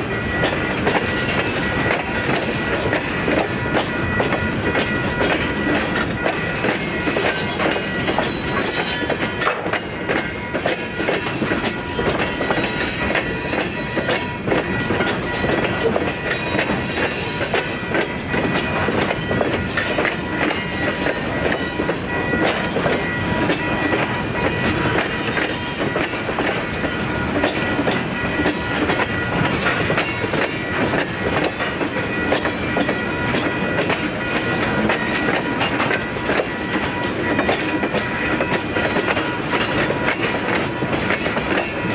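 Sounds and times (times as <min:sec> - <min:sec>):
train wheels clicking over joints: 0:00.1 - 0:41.9.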